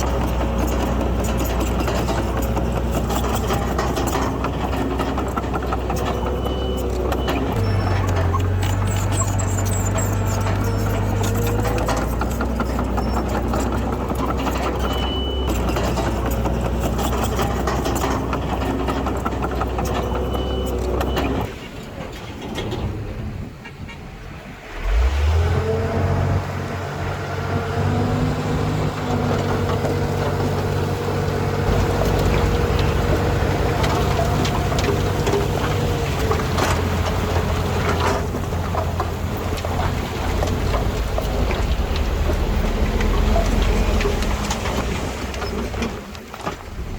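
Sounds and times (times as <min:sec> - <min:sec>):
heavy machinery diesel engines: 0:00.0 - 0:46.9
brief high squeaks: 0:06.2 - 0:13.6.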